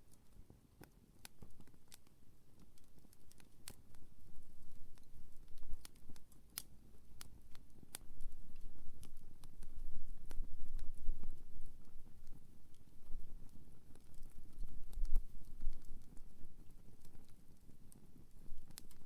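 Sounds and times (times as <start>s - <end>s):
campfire crackling: 0.1s - 19.0s.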